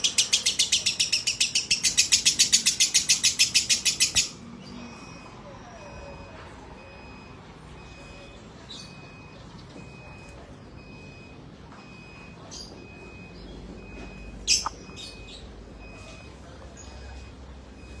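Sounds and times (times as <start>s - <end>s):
lovebird chirps: 14.4s - 15.5s.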